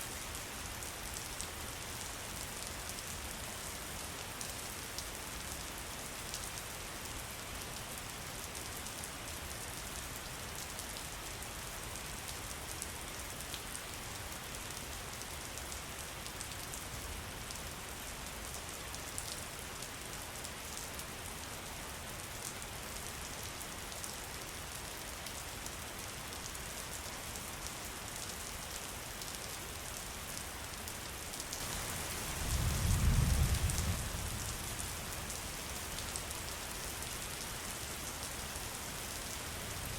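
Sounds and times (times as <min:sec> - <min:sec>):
steady rain patter: 0:00.0 - 0:39.9
low rumble of thunder: 0:32.4 - 0:34.8.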